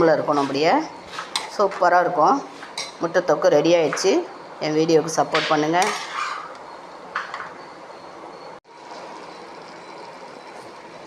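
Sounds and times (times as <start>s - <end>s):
gravy simmering in a pan: 8.7s - 11.0s.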